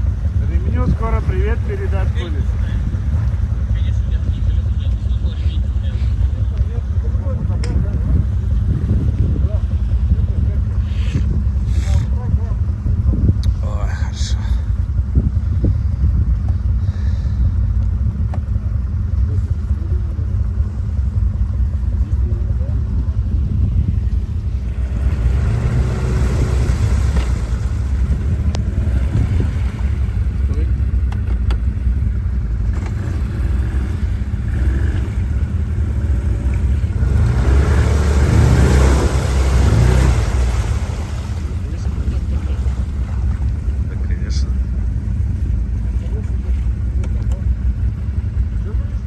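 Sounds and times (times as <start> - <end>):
quad bike engine rumbling: 0.0 - 49.0
water splashing: 24.0 - 48.6.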